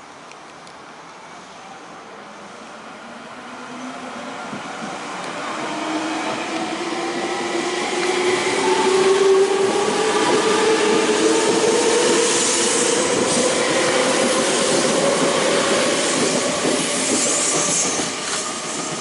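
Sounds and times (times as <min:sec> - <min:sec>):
rising train whine: 0:00.9 - 0:19.0
electric train running noise: 0:04.5 - 0:19.0.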